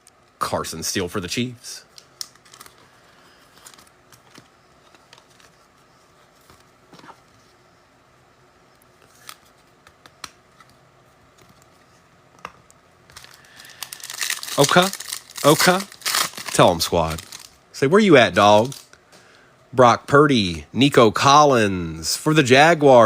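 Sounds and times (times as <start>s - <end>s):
trading cards handled: 1.9s - 7.6s.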